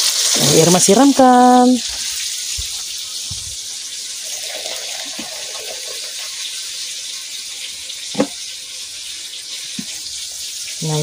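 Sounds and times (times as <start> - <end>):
water pouring from kettle: 1.9 - 10.8.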